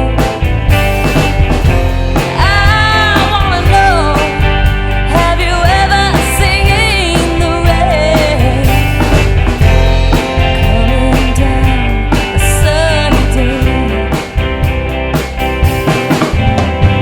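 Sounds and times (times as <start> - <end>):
rock band playing: 0.0 - 17.0
lead singer singing: 2.2 - 9.0.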